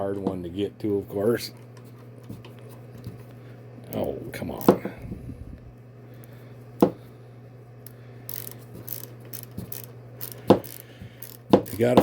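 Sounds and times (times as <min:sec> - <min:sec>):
ratchet clicking: 0:07.8 - 0:12.0.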